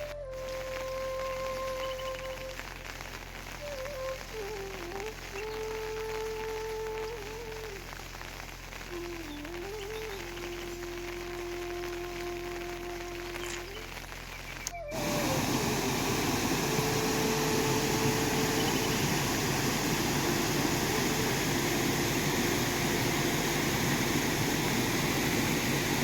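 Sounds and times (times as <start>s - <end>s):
faint drawn-out tones: 8.8s - 26.0s
water rushing: 14.9s - 26.0s.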